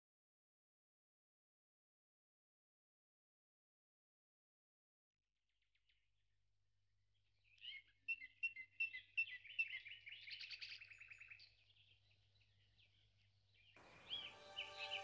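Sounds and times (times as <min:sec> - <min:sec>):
songbird singing: 0:07.4 - 0:15.0.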